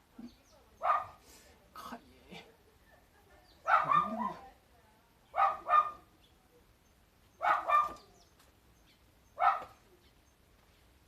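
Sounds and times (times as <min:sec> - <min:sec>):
dog barking: 0:00.8 - 0:01.2, 0:03.6 - 0:04.4, 0:05.4 - 0:06.1, 0:07.4 - 0:08.1, 0:09.4 - 0:09.8.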